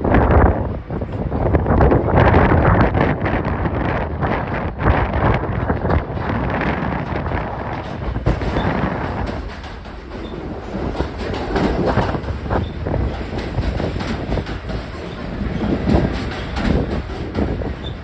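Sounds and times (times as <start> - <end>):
subway train rumbling: 0.0 - 18.0
wheels clacking over rail joints: 4.3 - 18.0.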